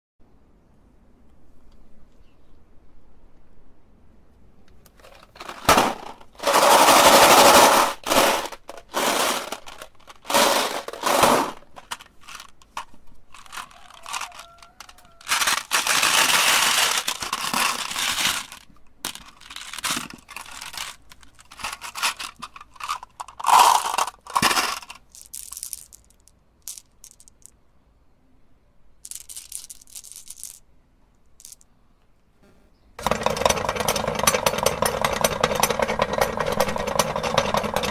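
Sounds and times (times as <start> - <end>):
meat grinder crunching hard objects: 6.4 - 11.7, 15.2 - 18.6, 33.0 - 37.9.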